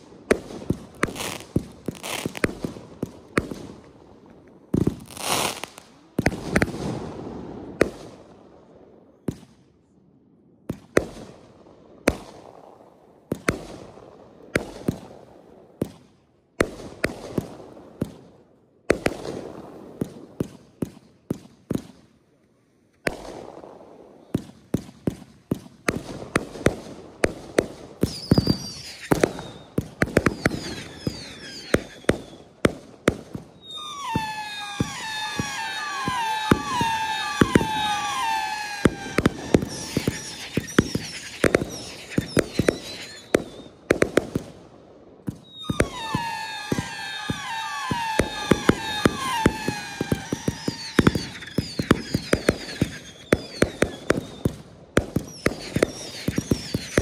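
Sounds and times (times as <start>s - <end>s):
fireworks bursting with crackle: 0.0s - 10.0s, 10.7s - 22.2s, 22.9s - 57.0s.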